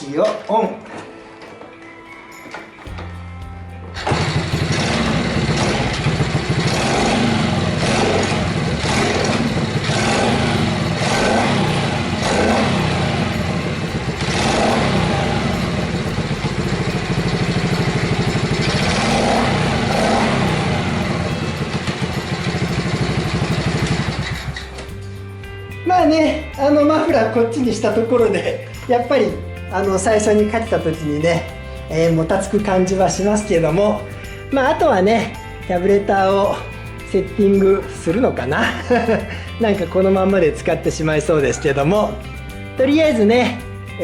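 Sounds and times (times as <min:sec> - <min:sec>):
small engine revving: 0:03.9 - 0:25.1.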